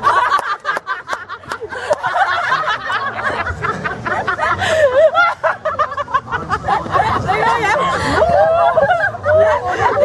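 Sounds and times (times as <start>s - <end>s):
people giggling: 0.0s - 10.0s
people chatting: 6.3s - 10.0s.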